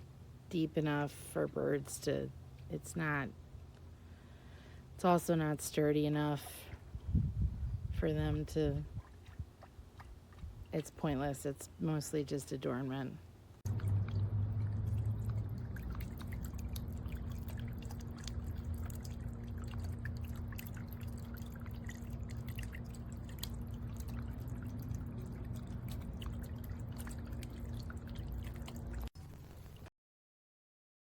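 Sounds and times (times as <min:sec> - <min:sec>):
steady low hum: 0:00.0 - 0:29.1
water dripping: 0:13.7 - 0:29.9.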